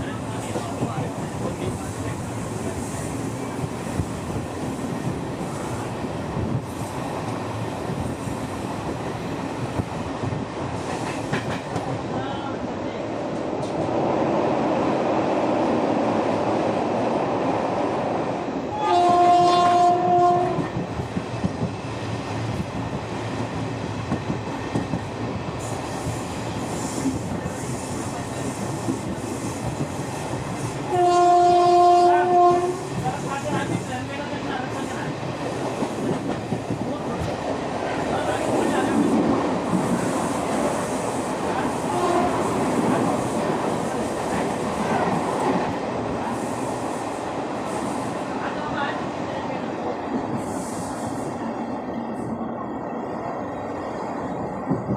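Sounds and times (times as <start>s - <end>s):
train rumbling and clattering: 0.0s - 54.9s
train horn blasts: 18.7s - 20.7s, 30.9s - 32.9s, 41.9s - 42.5s.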